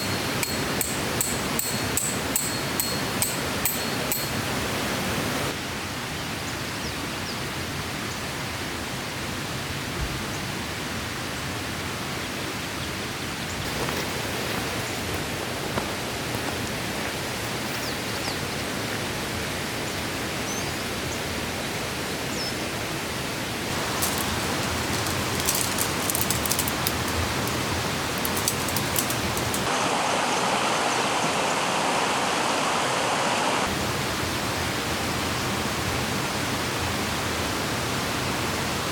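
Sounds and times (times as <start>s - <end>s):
stream flowing: 0.0s - 5.6s, 23.6s - 38.5s
falling rain: 23.6s - 38.9s
light ticks: 23.7s - 29.7s.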